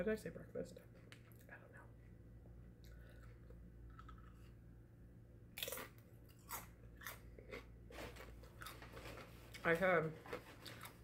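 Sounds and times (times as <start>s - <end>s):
person crunching tortilla chips: 2.8s - 4.6s, 5.6s - 11.0s.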